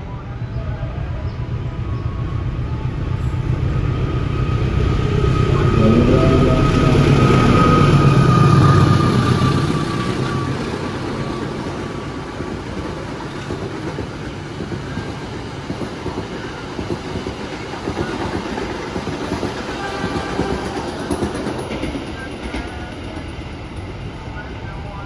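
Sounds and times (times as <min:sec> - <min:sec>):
train coaches rumbling: 0:00.0 - 0:25.0
locomotive engine: 0:01.0 - 0:13.3.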